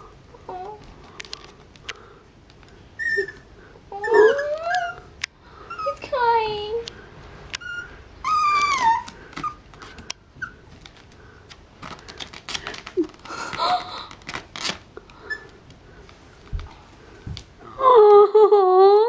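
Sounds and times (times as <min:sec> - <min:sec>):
small dog whimpering: 0:00.3 - 0:00.8, 0:02.6 - 0:06.2, 0:07.6 - 0:09.6, 0:15.3 - 0:15.6.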